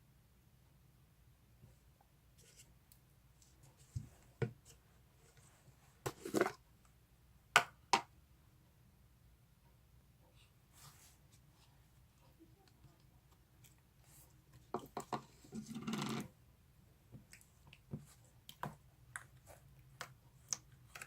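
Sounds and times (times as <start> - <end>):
handling knocks and scrapes: 3.4 - 6.6.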